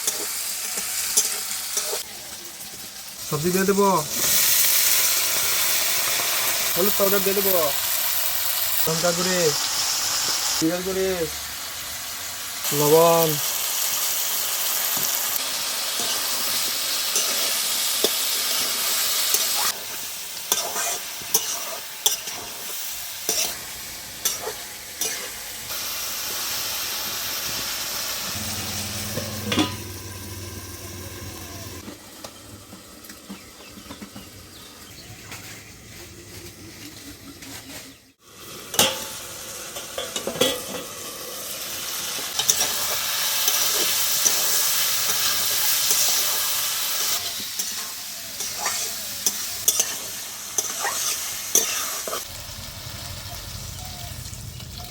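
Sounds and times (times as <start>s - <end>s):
vegetables sizzling in hot oil: 0.0s - 35.0s, 38.0s - 54.9s
spoon scraping a pan: 20.5s - 23.6s, 24.2s - 25.4s, 48.4s - 52.2s.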